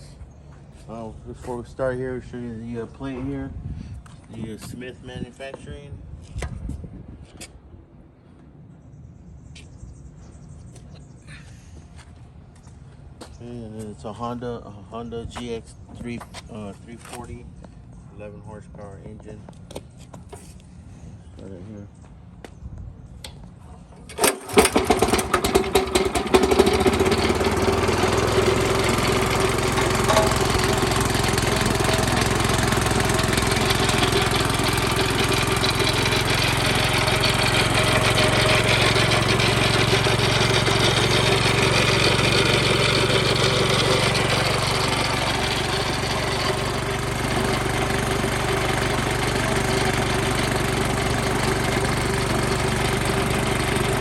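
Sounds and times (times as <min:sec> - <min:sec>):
gasoline engine starting and running: 0:23.2 - 0:54.0.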